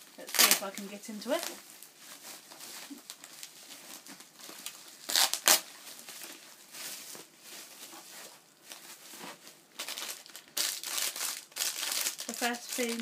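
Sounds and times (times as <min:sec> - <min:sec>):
plastic packaging rustling: 0:00.0 - 0:13.0
plastic tearing: 0:00.1 - 0:01.6, 0:02.2 - 0:06.4, 0:09.8 - 0:13.0.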